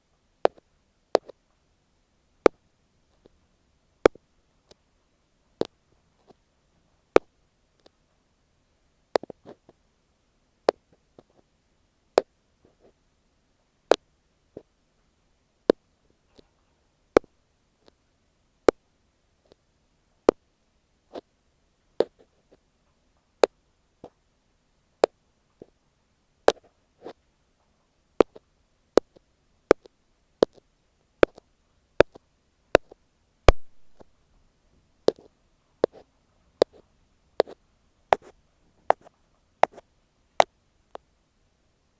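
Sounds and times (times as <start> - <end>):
ear pick tapping on microphone: 28.2 - 28.4, 31.2 - 31.4, 32.8 - 34.1, 36.6 - 36.8, 37.4 - 38.3, 38.9 - 39.8.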